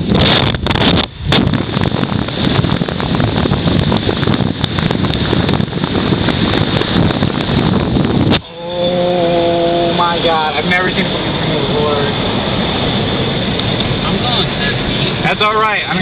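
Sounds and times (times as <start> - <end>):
strong wind on microphone: 0.0 - 16.0
crackles and pops: 0.1 - 8.5.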